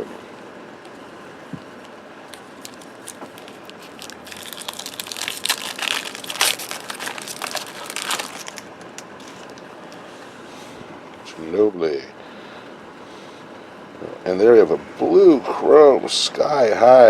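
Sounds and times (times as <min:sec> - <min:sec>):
wrapper crinkling: 0:02.3 - 0:10.1.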